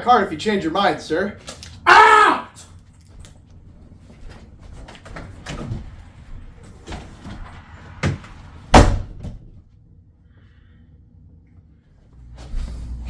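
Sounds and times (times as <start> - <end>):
door slamming shut: 6.9 - 9.5.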